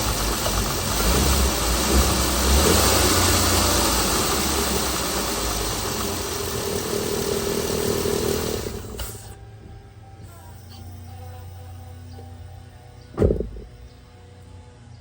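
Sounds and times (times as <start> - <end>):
car engine running: 0.0 - 14.0
faint music: 9.3 - 15.0.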